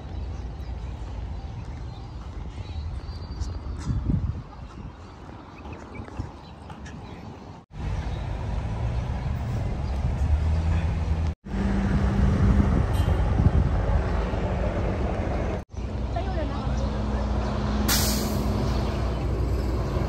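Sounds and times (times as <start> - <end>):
vehicle engine rumbling: 6.7 - 20.0.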